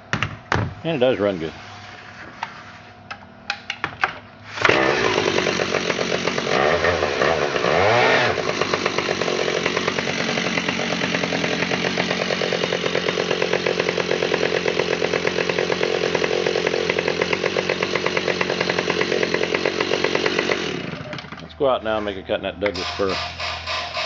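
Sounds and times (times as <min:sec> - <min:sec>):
chainsaw engine revving: 0:04.5 - 0:21.6, 0:22.7 - 0:24.0.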